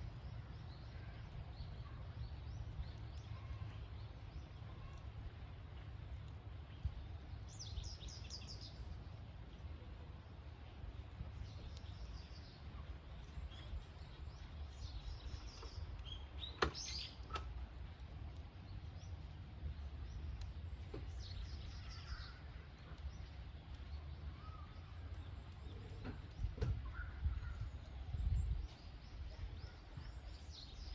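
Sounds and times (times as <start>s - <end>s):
campfire crackling: 0.0s - 30.9s
high chirping calls: 14.4s - 17.4s.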